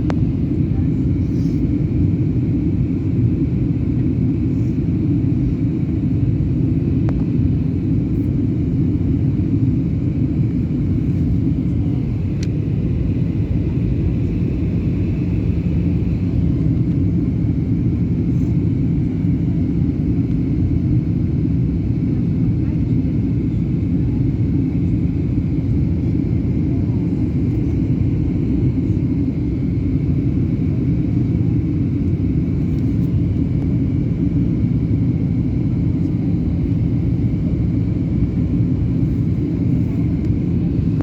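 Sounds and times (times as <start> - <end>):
airliner engine rumble: 0.0 - 41.0
airflow noise: 10.2 - 18.9.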